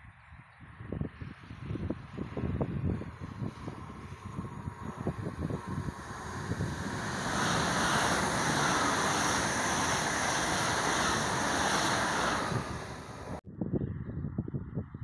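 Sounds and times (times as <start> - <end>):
high-speed train passing: 2.0 - 13.4.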